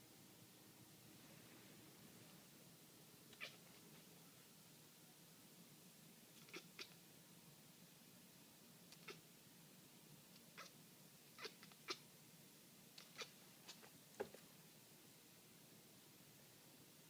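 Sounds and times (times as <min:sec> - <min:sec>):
cat chirping: 0:03.3 - 0:03.9, 0:06.4 - 0:07.0, 0:08.9 - 0:09.2, 0:10.4 - 0:12.1, 0:13.0 - 0:13.9.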